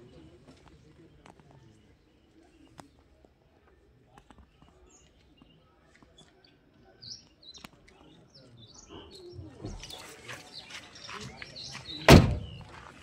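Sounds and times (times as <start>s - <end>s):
faint bird chirps: 4.0s - 12.8s
low thump: 12.1s - 12.7s.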